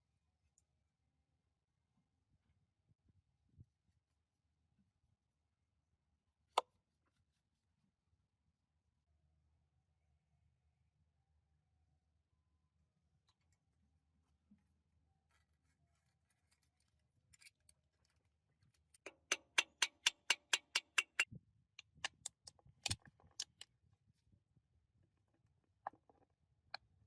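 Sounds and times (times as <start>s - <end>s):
light metal-on-metal taps: 19.0s - 23.6s.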